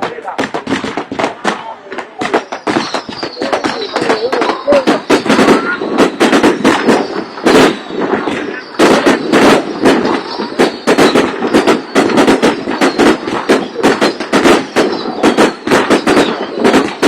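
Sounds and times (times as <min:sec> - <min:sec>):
fireworks banging: 0:00.0 - 0:17.0.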